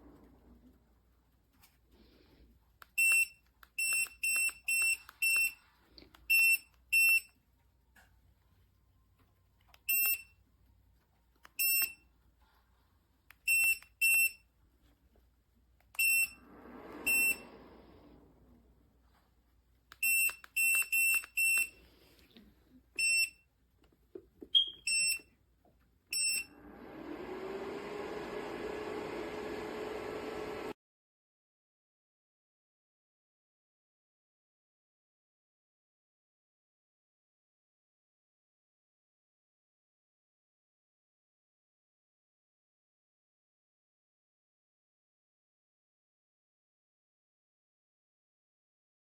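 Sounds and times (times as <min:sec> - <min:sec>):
heater fan whirring: 0:16.0 - 0:19.0, 0:26.4 - 0:30.8
short high beeps: 0:17.1 - 0:17.4, 0:24.6 - 0:25.2.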